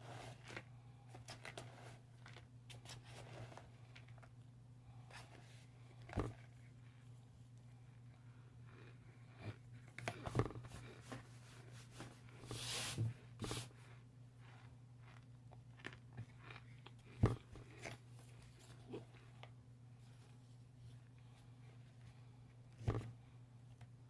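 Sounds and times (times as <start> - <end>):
crisp chewing crunches: 14.4 - 18.0.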